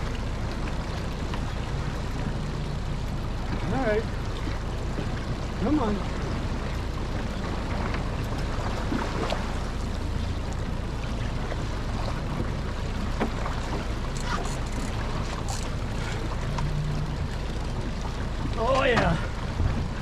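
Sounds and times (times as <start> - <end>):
outboard motor idling: 0.0 - 20.0
wind and water wash: 0.0 - 20.0.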